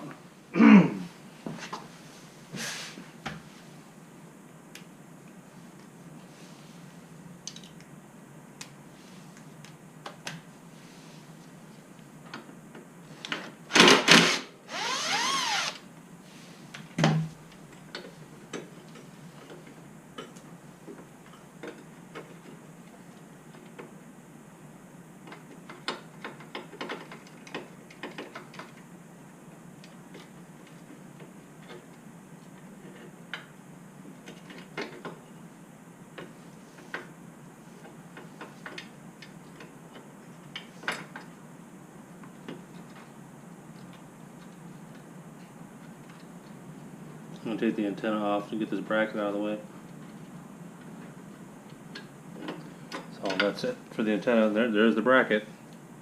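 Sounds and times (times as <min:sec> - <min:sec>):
short grinding burst: 0:13.8 - 0:15.8.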